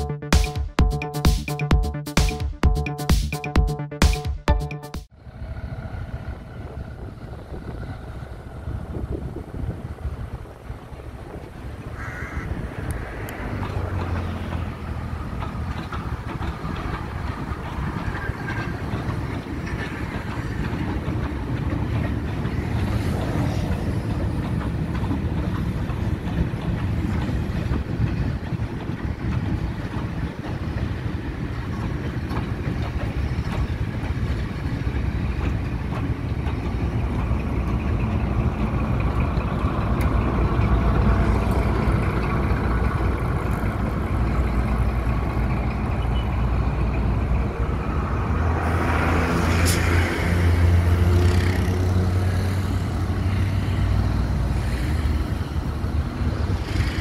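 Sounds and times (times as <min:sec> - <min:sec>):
diesel locomotive drone: 0:00.0 - 0:57.0
wheels clicking over rail joints: 0:06.2 - 0:57.0
train wagons clattering: 0:12.6 - 0:57.0.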